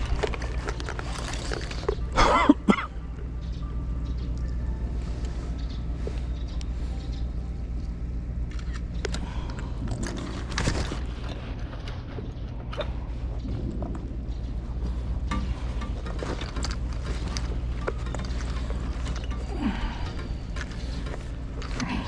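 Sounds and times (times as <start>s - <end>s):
low mechanical hum: 0.0s - 22.0s
scattered clicks: 7.8s - 12.0s.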